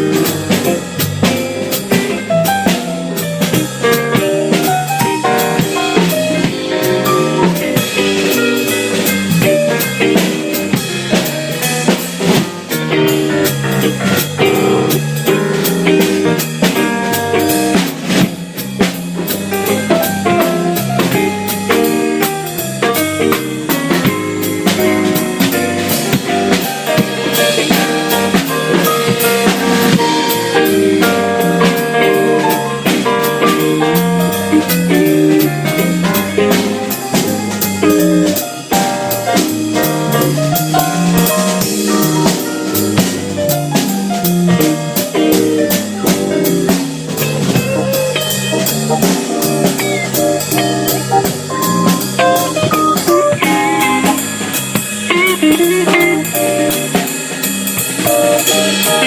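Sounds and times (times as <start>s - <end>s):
jazz band playing blues: 0.0s - 59.0s
low bass line: 22.6s - 57.0s.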